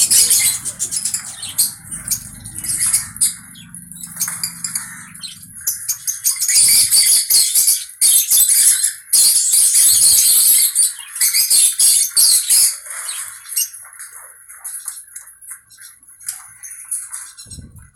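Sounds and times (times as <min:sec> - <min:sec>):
parrot screeching: 0:00.0 - 0:07.7
parrot chatter: 0:00.0 - 0:07.8.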